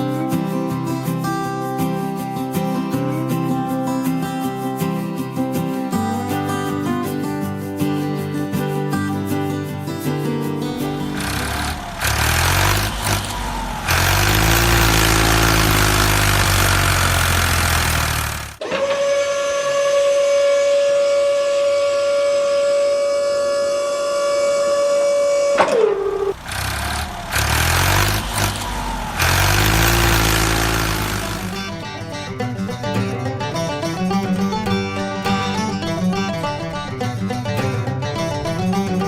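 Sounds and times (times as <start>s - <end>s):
truck engine revving: 10.6s - 18.6s, 25.3s - 32.9s
truck horn blast: 10.8s - 31.9s.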